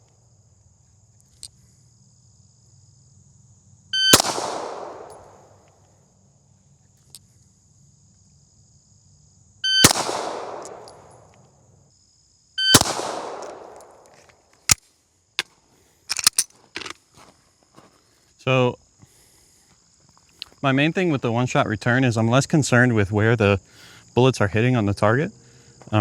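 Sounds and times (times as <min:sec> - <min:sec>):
handgun shots echoing: 0:04.1 - 0:05.4, 0:09.8 - 0:11.3, 0:12.7 - 0:14.1.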